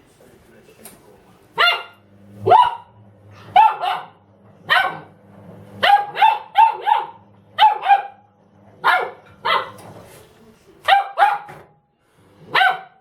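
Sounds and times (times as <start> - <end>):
dog barking: 1.6 - 5.1, 5.8 - 8.2, 8.8 - 9.8, 10.8 - 11.6, 12.5 - 13.0.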